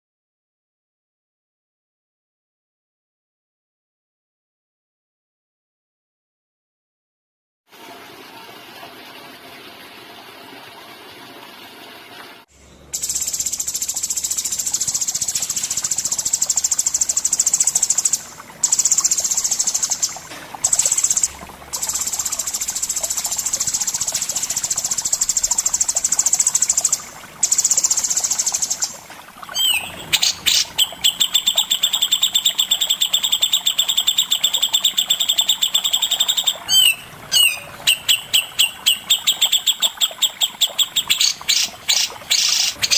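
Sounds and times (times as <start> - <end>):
songbird trilling: 13.0 - 42.9.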